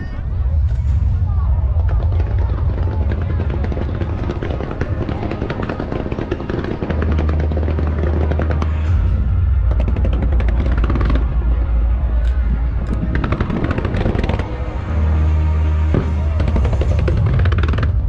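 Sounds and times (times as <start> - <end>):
fireworks popping and crackling: 1.8 - 11.5, 12.2 - 14.6, 15.9 - 18.0.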